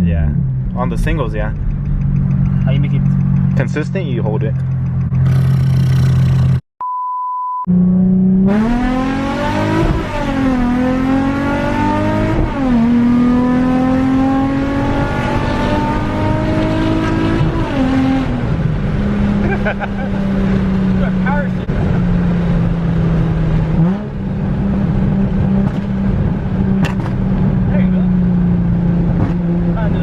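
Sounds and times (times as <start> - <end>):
steady electronic beep: 6.8 - 7.7
car engine accelerating hard: 7.7 - 30.0.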